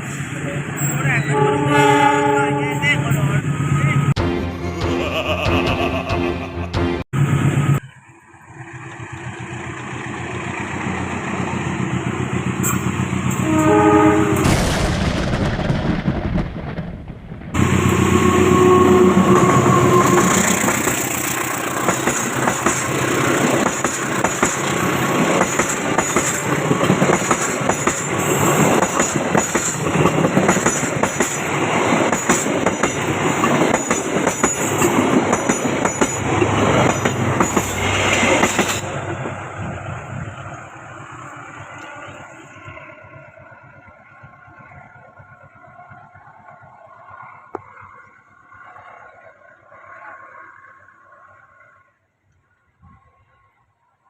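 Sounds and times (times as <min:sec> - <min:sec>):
train horn: 0:01.2 - 0:03.2, 0:13.3 - 0:14.5, 0:17.6 - 0:20.6
train wheels clattering on rails: 0:19.4 - 0:39.2.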